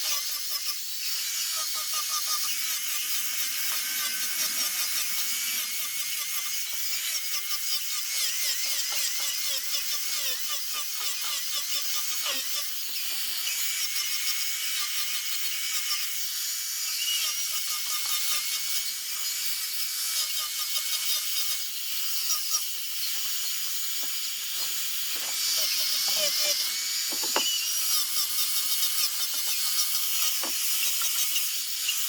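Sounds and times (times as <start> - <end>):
power sander whining: 0.0 - 14.0, 22.2 - 28.2.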